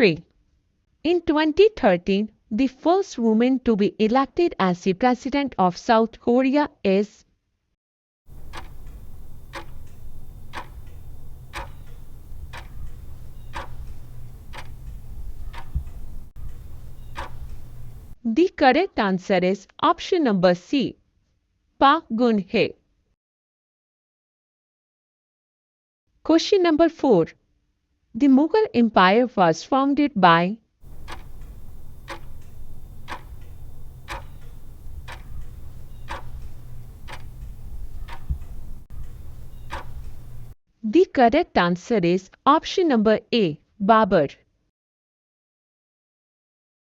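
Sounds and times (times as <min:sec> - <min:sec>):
clock ticking: 0:08.3 - 0:18.2, 0:30.8 - 0:40.6
low steady hum: 0:08.3 - 0:18.2, 0:30.8 - 0:40.6.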